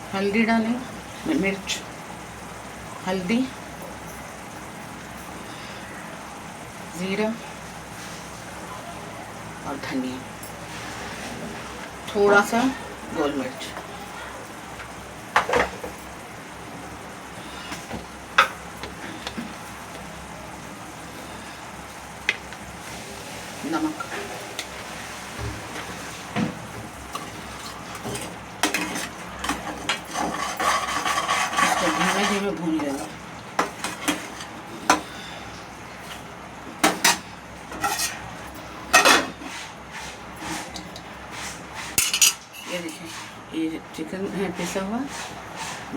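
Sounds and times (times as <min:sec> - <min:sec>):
masala frying in oil: 0:00.0 - 0:45.9
metal spoon stirring in a pot: 0:27.2 - 0:35.1, 0:36.9 - 0:38.3, 0:38.9 - 0:43.4
spoon clinking and scraping pot: 0:27.2 - 0:35.1, 0:36.9 - 0:38.2, 0:42.0 - 0:43.3.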